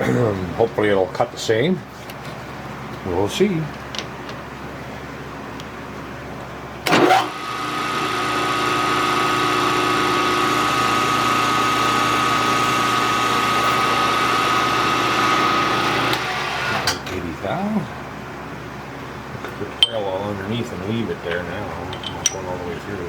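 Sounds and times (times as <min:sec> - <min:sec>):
milling machine whining: 0:06.8 - 0:17.1.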